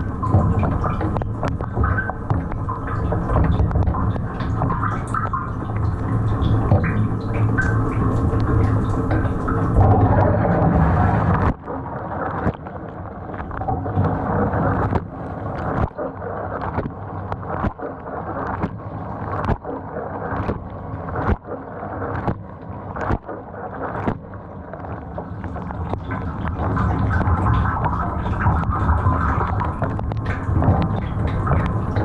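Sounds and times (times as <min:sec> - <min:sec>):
dishwasher water rushing and splashing: 0:00.0 - 0:11.6, 0:26.0 - 0:32.0.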